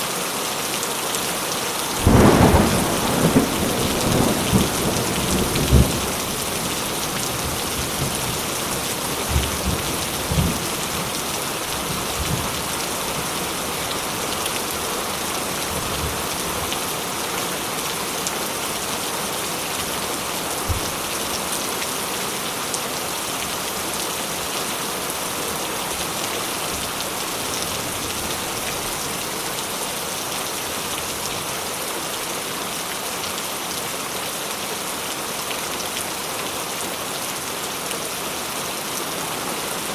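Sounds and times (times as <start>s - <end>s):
heavy rain falling: 0.0s - 39.9s
thunder rumbling: 2.0s - 11.1s.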